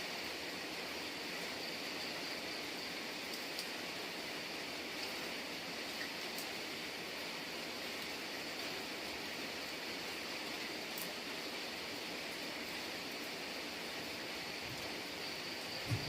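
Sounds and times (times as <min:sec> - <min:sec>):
steady rain falling: 0:00.0 - 0:16.0
faint raindrop ticks: 0:03.2 - 0:03.8, 0:05.9 - 0:06.6, 0:10.5 - 0:11.2.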